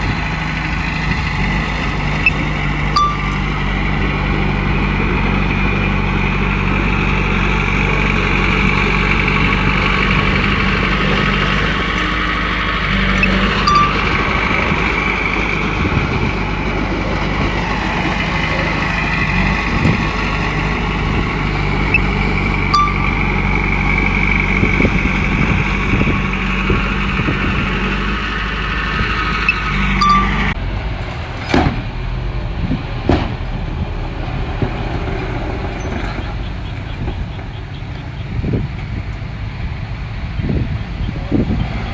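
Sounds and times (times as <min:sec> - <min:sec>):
bulldozer diesel engine running: 0:00.0 - 0:41.9
high whine: 0:02.2 - 0:03.9, 0:12.9 - 0:15.1, 0:21.9 - 0:24.3, 0:29.5 - 0:30.6
sharp metallic clanks: 0:03.0 - 0:03.6, 0:13.2 - 0:14.4, 0:22.7 - 0:23.6, 0:29.5 - 0:30.6.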